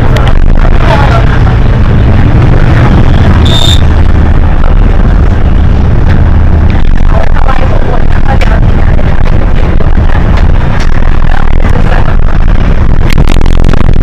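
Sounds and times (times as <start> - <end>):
bus diesel engine drone: 0.0 - 14.0
short high-pitched tone: 3.1 - 3.9.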